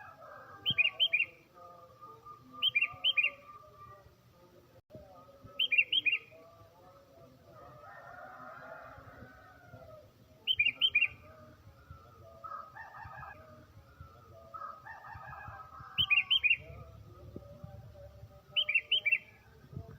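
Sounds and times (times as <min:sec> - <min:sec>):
bird singing bright notes: 0:00.7 - 0:01.4, 0:02.0 - 0:03.7, 0:05.5 - 0:06.4, 0:10.4 - 0:11.4, 0:16.0 - 0:16.8, 0:18.5 - 0:19.5.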